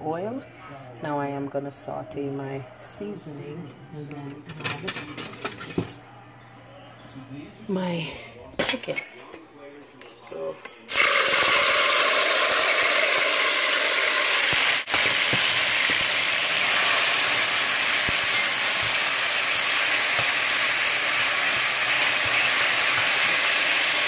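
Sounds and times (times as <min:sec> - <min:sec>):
vegetables sizzling in hot oil: 0:10.9 - 0:24.0.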